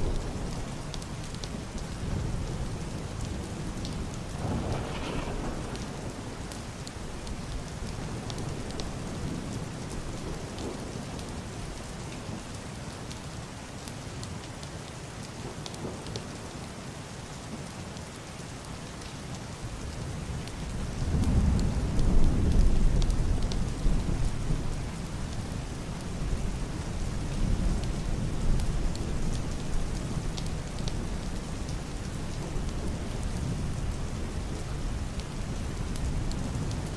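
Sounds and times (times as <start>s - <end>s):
muffled thunder rumble: 0.0s - 11.8s, 20.2s - 36.9s
heavy rain on roof and window: 0.0s - 36.9s.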